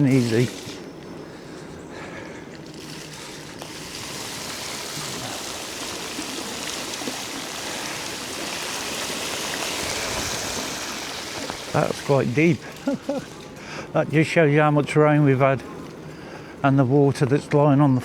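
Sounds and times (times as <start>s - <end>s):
bike tyres spraying through puddle: 0.0s - 0.9s, 2.6s - 13.6s.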